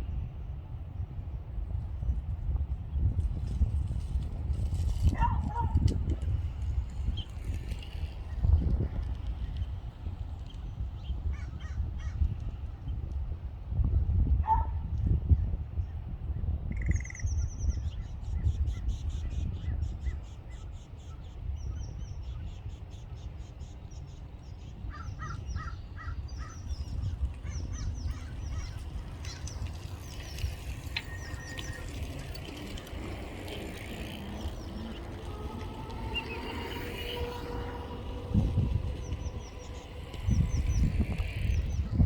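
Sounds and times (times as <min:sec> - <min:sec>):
birds chirping: 0:16.8 - 0:42.0
steady low rumble: 0:25.8 - 0:42.0.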